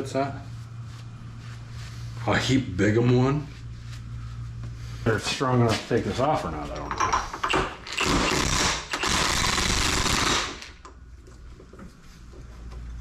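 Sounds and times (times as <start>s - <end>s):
impact wrench hammering: 7.0s - 10.8s.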